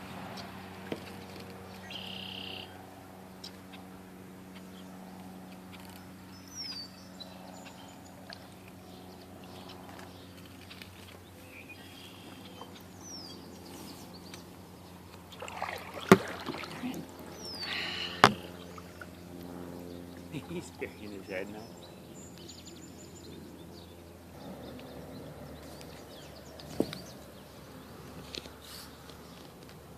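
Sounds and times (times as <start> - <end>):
steady low hum: 0.0 - 29.9
bird chirps: 1.8 - 2.7, 5.8 - 8.1, 16.8 - 19.2
water sloshing: 15.0 - 21.0
knock against kayak: 16.0 - 16.8, 18.2 - 18.5.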